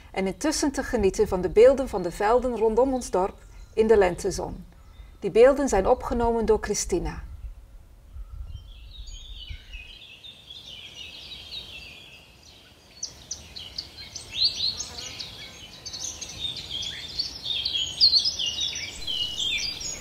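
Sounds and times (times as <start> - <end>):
birds singing: 0.0 - 6.3, 7.2 - 20.0.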